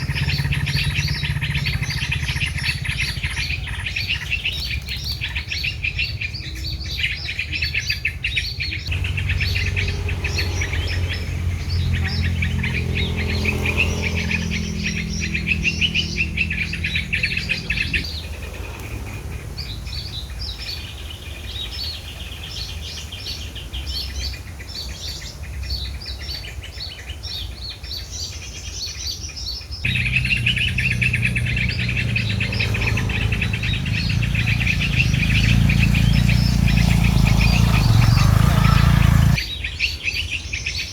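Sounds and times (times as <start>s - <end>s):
small birds chirping: 0.0s - 40.9s
low rumble: 29.9s - 39.4s.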